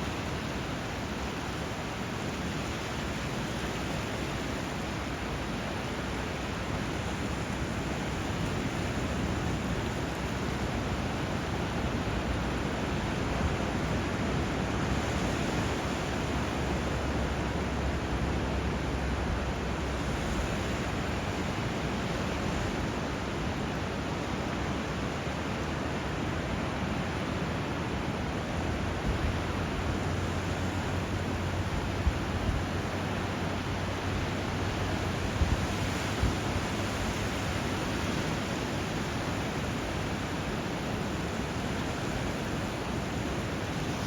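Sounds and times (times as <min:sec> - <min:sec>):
water rushing: 0:00.0 - 0:44.0.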